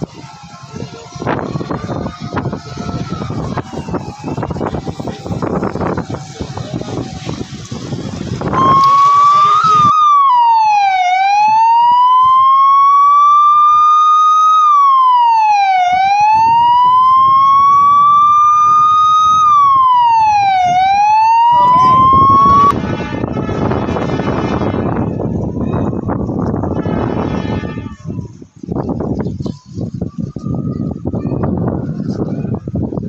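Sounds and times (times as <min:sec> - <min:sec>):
siren wailing: 0:00.0 - 0:23.8.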